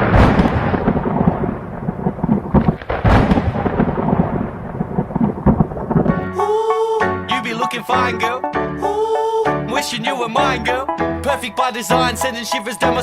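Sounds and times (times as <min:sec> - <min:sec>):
sharp boom: 0:00.0 - 0:06.2
thunder-like rumble: 0:00.0 - 0:06.2.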